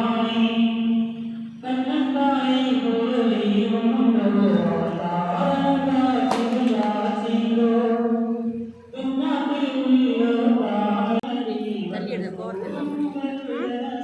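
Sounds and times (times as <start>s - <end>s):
voices singing a chant: 0.0s - 14.0s.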